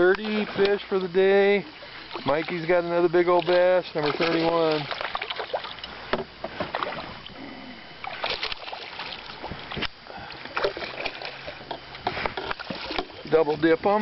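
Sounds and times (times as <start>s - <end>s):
water sloshing around boat: 0.0s - 14.0s.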